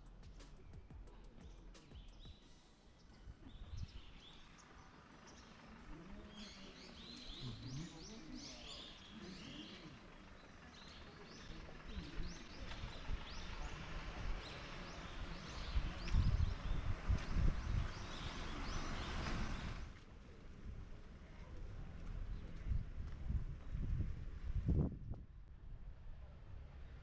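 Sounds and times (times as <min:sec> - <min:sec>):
small birds chirping: 0:00.0 - 0:19.9.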